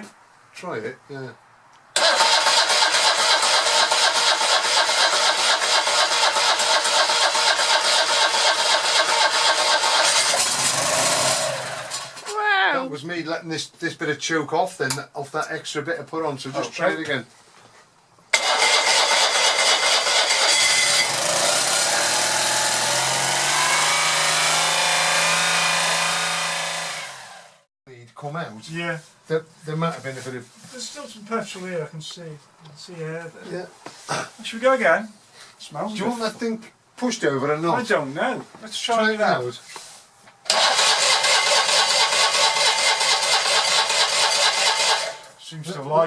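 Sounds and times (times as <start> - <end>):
engine cranking on starter motor: 2.0 - 12.3, 18.4 - 27.4, 40.5 - 45.3.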